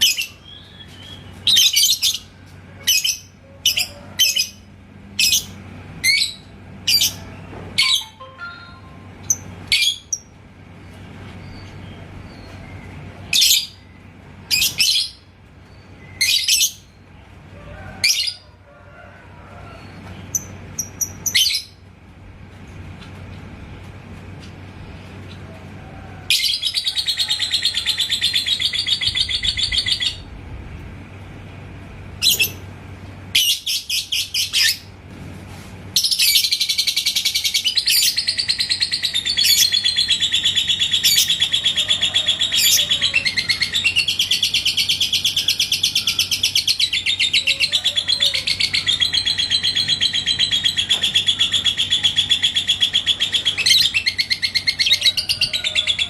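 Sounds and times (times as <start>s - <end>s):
lovebird chattering trill: 36.0s - 56.0s.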